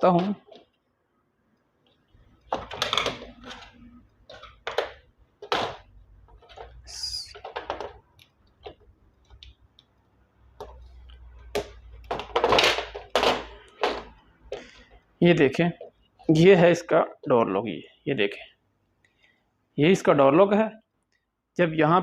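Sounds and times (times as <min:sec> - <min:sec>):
clicks and knocks of plastic handling: 0:00.0 - 0:00.9, 0:01.8 - 0:15.0.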